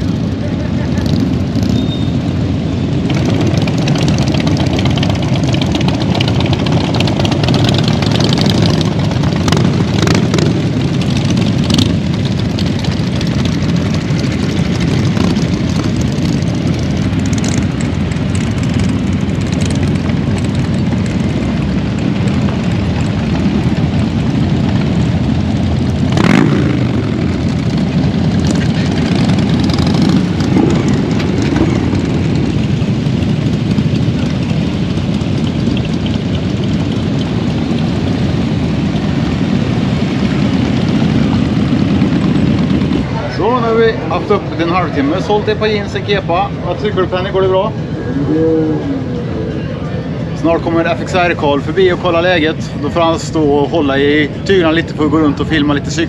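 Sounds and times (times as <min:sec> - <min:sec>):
motorcycle engines running: 0:00.0 - 0:56.0.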